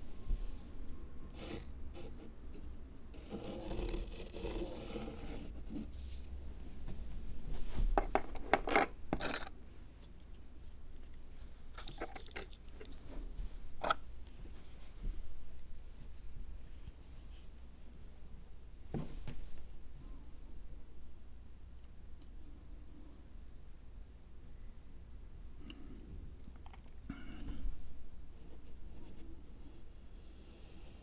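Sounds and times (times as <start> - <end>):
soft scraping and rubbing: 0.0 - 8.2.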